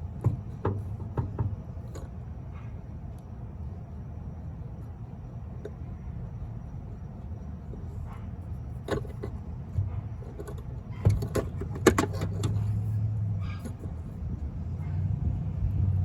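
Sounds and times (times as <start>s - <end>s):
vehicle engine running: 4.4s - 16.0s.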